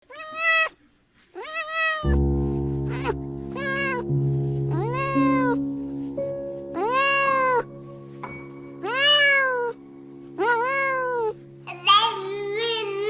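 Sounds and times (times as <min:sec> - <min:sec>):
cat meowing: 0:00.0 - 0:00.8, 0:01.4 - 0:02.2, 0:02.9 - 0:04.1, 0:04.7 - 0:05.6, 0:06.8 - 0:07.7, 0:08.8 - 0:09.8, 0:10.4 - 0:11.4
background music: 0:02.1 - 0:13.0.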